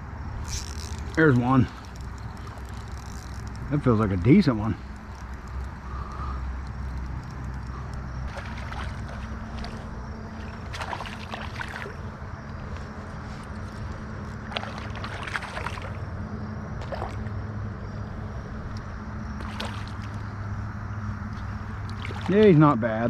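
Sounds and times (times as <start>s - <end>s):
low hum: 0.0s - 23.0s
flowing river water: 7.0s - 17.4s, 19.4s - 20.4s, 21.3s - 22.7s
fish splashing: 7.6s - 12.2s, 13.6s - 16.1s, 16.8s - 17.4s, 19.4s - 20.4s, 21.4s - 22.4s.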